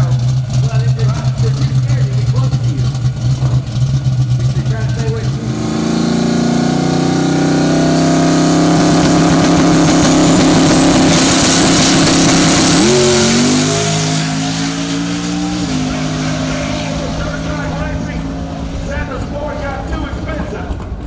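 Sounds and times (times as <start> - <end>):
car engine revving: 0.0 - 21.0
turbo whine: 5.3 - 19.9.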